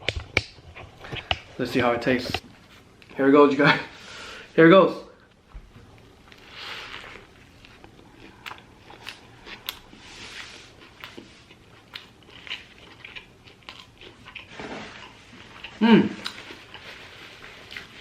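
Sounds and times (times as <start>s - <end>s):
person chewing a hamburger: 5.2s - 18.0s.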